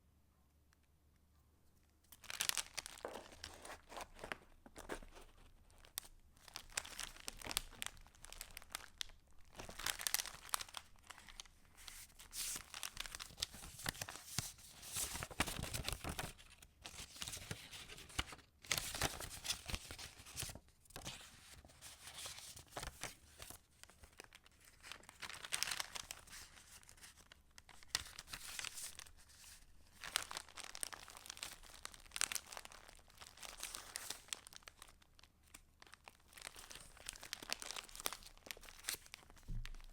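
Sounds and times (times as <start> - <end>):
paper pages rustling: 2.1 - 8.8, 9.6 - 32.8.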